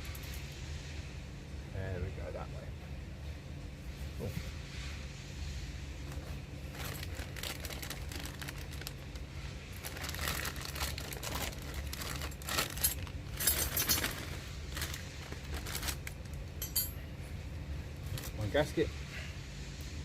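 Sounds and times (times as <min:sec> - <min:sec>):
plastic packaging crinkling: 0:06.7 - 0:16.4.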